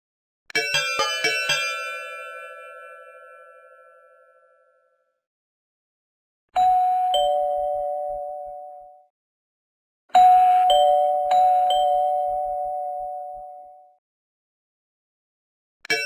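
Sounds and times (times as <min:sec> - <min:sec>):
two-tone doorbell chime: 0:06.6 - 0:09.1, 0:10.1 - 0:14.0.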